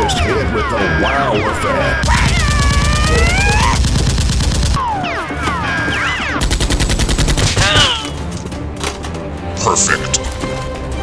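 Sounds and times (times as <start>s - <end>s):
rapid gunfire: 1.2s - 8.1s.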